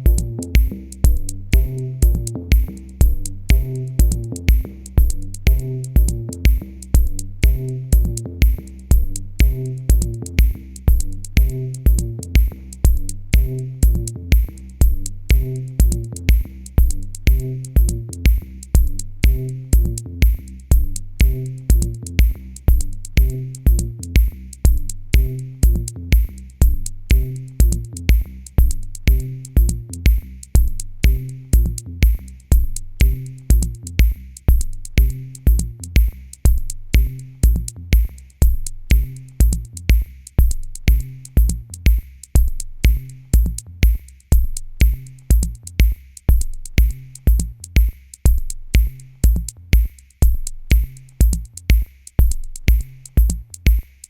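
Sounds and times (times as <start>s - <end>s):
repeating bass line: 0.0s - 41.7s
drum machine beat: 0.0s - 54.0s.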